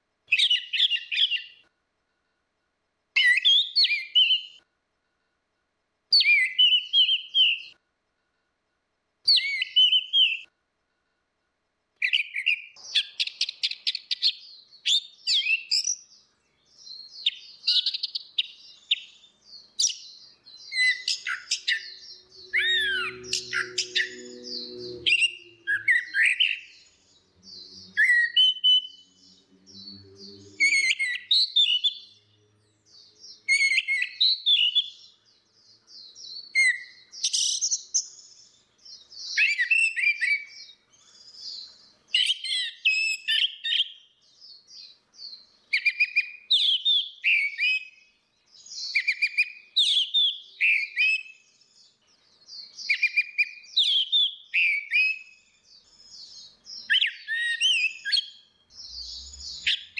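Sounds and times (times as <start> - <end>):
thrush singing: 21.0 - 31.0.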